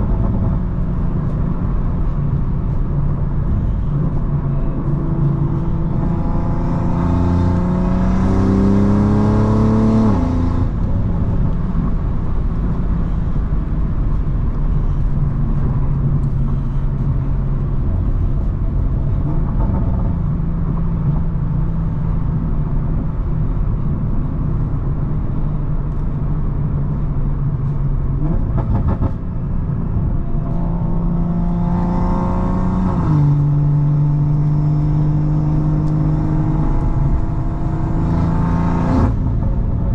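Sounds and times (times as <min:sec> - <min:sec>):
car engine accelerating hard: 0:00.0 - 0:39.9.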